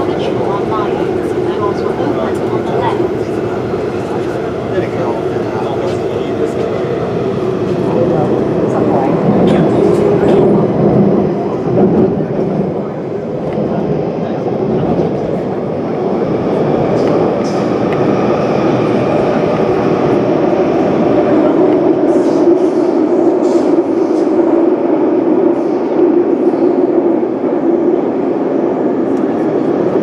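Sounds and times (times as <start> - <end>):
train wheels and motors rumbling: 0.0 - 30.0.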